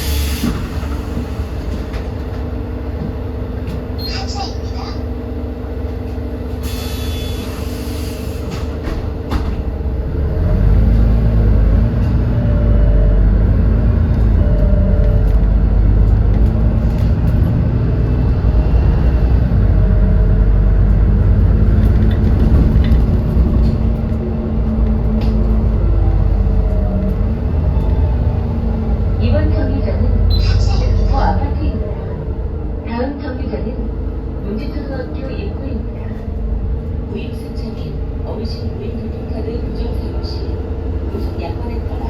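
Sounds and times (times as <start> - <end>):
bus engine running: 0.0 - 42.0.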